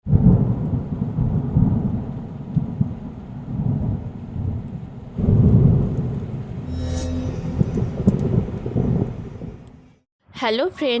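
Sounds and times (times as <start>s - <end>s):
deep low rumble: 5.9s - 9.7s.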